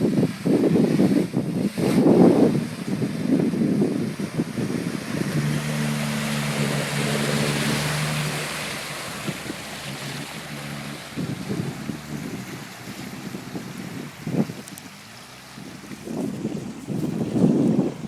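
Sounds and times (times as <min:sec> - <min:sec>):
water splashing over vehicle: 0:00.0 - 0:18.0
vehicle engine running: 0:02.2 - 0:18.0.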